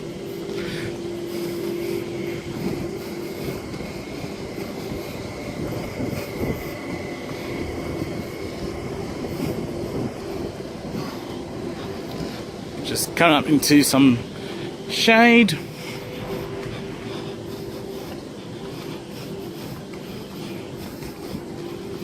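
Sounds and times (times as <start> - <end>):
faint high whine: 0.0 - 22.0
train equipment humming: 0.0 - 22.0
low rumble: 15.6 - 19.4.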